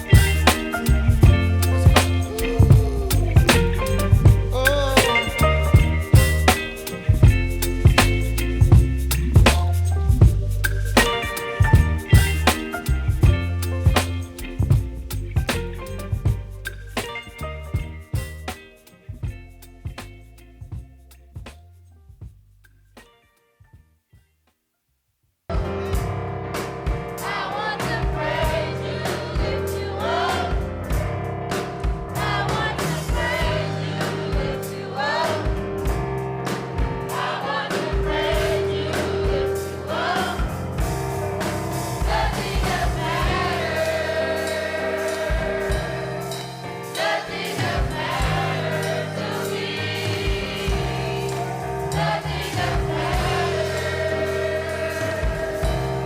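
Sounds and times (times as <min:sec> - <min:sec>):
gospel choir singing: 0:00.0 - 0:07.5, 0:27.2 - 0:56.0
drum hits: 0:00.0 - 0:17.2
bass notes: 0:00.0 - 0:23.0, 0:50.1 - 0:56.0.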